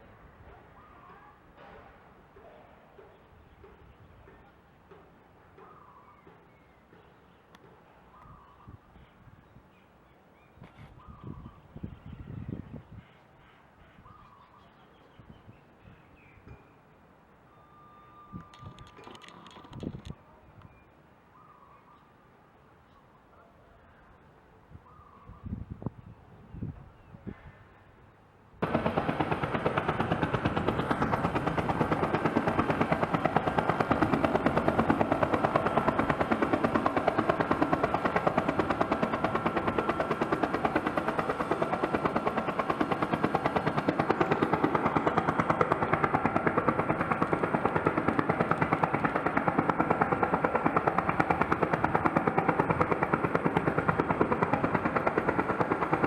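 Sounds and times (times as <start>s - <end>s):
helicopter rotor chopping: 18.6s - 20.1s, 28.6s - 56.0s.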